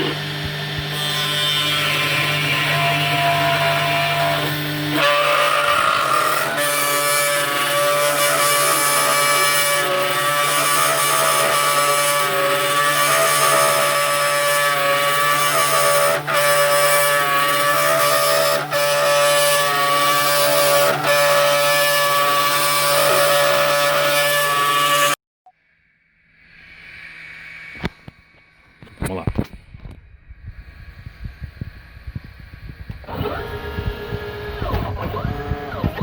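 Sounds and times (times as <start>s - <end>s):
machine whine over hiss: 26.2s - 28.8s.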